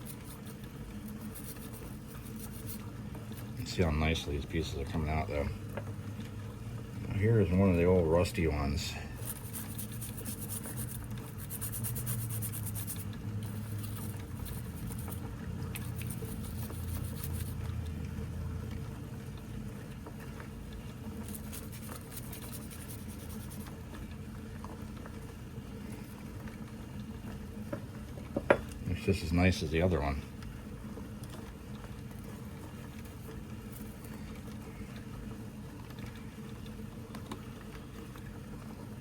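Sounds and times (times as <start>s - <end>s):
low steady hum: 0.0s - 39.0s
metal parts rubbed by hand: 9.2s - 15.2s, 15.8s - 17.6s, 21.2s - 23.6s.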